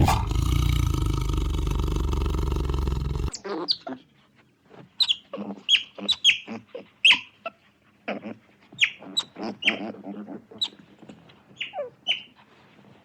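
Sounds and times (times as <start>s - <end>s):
high-pitched animal calls: 8.8s - 10.8s.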